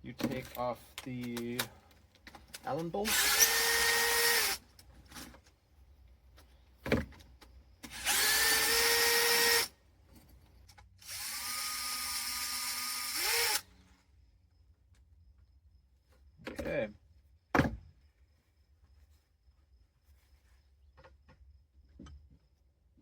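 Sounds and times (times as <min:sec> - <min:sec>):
power drill running: 0:03.1 - 0:04.6, 0:07.8 - 0:09.7, 0:11.0 - 0:13.7.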